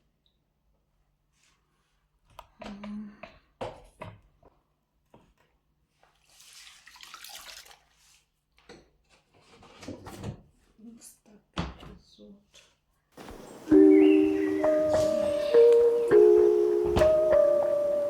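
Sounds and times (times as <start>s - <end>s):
rushing hissing noise: 13.2s - 18.0s.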